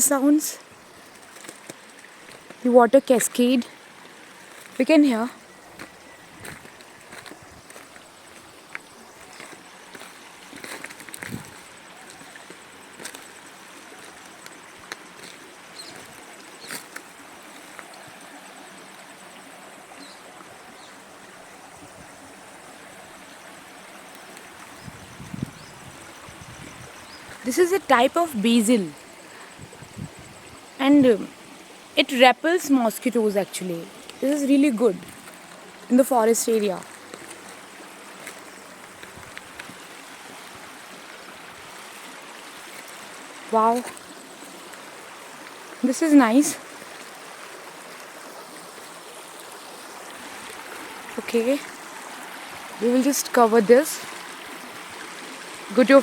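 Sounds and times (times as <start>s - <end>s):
stream cascading over rocks: 0.0s - 29.7s, 30.7s - 56.0s
water rushing over rocks: 30.8s - 56.0s.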